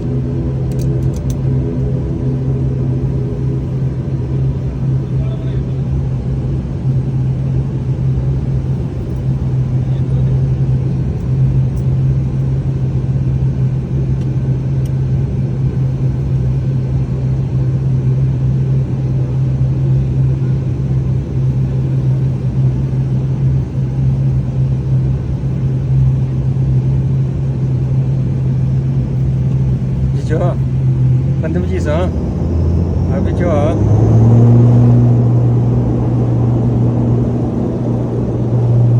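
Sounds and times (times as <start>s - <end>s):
airliner engines droning: 0.0s - 38.9s.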